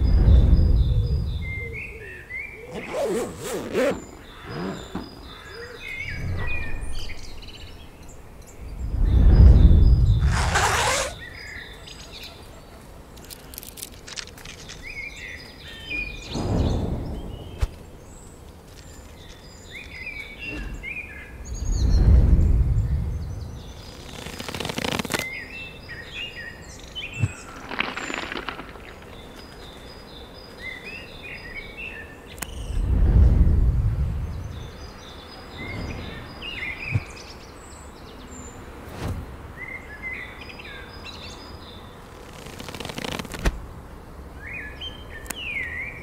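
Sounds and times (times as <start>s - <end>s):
low rumbling noise: 0.0s - 2.0s, 4.2s - 10.6s, 21.4s - 23.9s, 32.6s - 37.1s
songbirds chirping: 0.0s - 46.0s.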